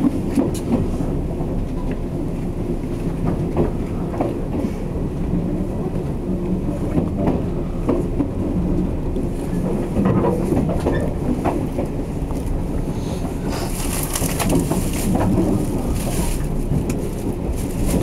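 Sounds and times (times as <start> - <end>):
train wheels rumbling on rail: 0.0 - 18.0
wheels clacking over rail joints: 5.3 - 12.6, 13.2 - 18.0.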